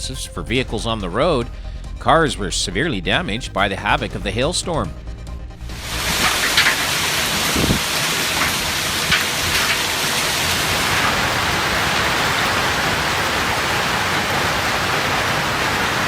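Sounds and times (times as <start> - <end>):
hail and heavy rain pelting: 5.7 - 16.0.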